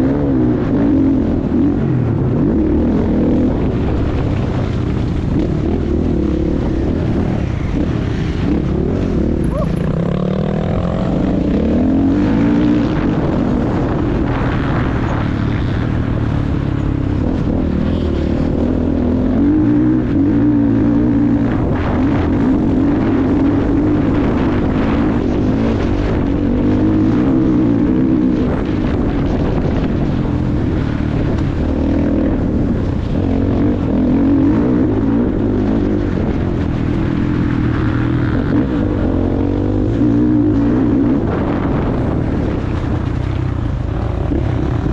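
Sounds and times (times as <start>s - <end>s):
motocross bike engine revving: 0.0s - 44.9s.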